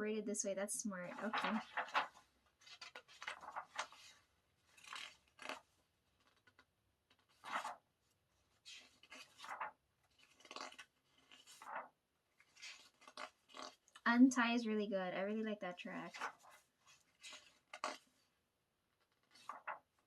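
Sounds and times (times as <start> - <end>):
paper pages rustling: 1.0 - 7.8, 8.4 - 14.0, 16.0 - 18.2, 19.0 - 20.0.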